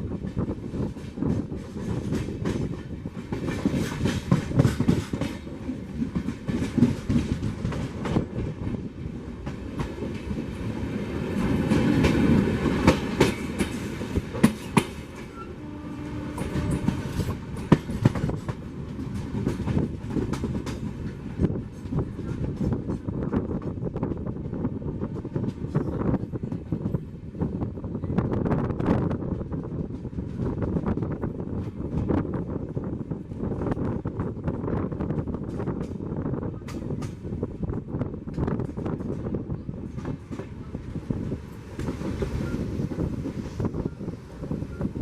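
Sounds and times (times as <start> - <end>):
train running rumble: 0.0 - 45.0
train wheels clacking over rail joints: 0.2 - 24.2.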